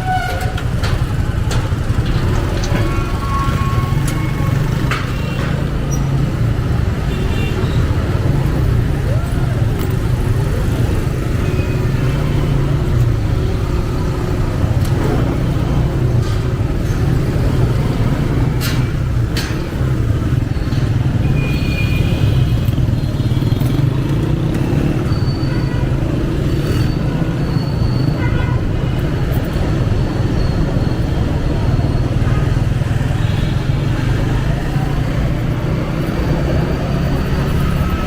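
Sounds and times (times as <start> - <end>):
road traffic: 0.0 - 38.0.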